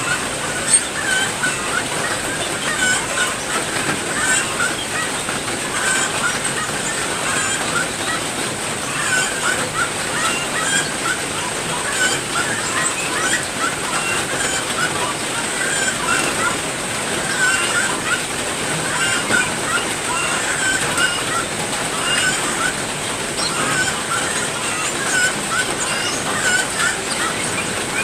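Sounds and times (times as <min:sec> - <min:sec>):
birds chirping: 0:00.0 - 0:28.0
steady rain falling: 0:00.0 - 0:28.0.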